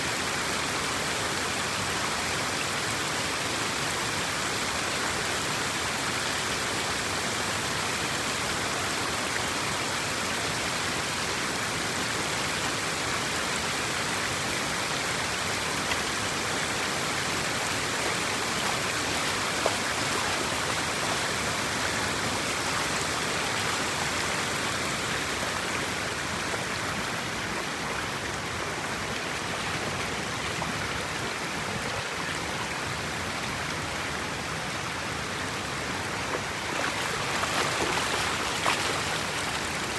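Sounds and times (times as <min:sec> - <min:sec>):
water rushing through drain: 0:36.1 - 0:39.9.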